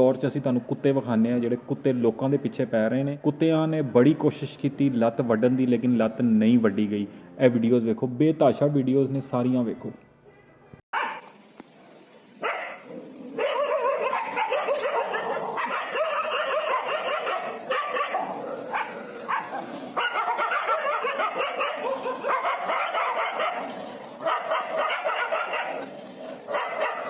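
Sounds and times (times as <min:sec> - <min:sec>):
dogs barking aggressively: 0:11.0 - 0:11.3, 0:12.4 - 0:27.0.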